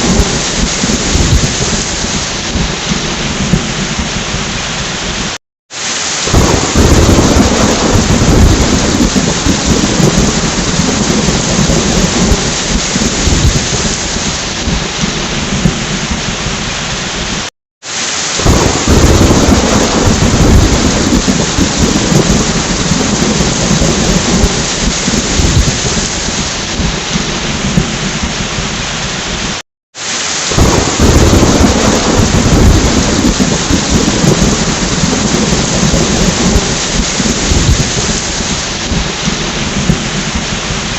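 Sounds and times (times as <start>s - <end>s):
low rolling thunder: 0.0s - 5.4s, 6.3s - 17.4s, 18.4s - 29.6s, 30.5s - 40.9s
heavy rain: 0.0s - 40.9s.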